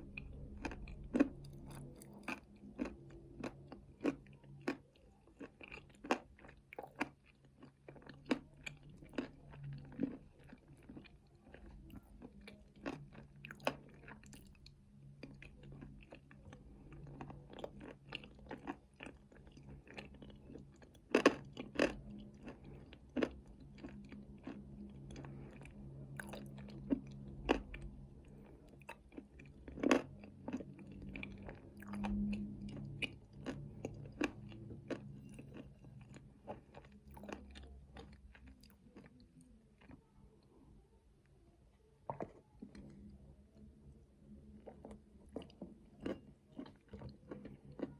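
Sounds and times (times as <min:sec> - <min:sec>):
wet chewing: 0:00.0 - 0:40.1, 0:44.6 - 0:47.9
crunching nuts: 0:00.1 - 0:14.6, 0:15.2 - 0:25.6, 0:26.2 - 0:39.2.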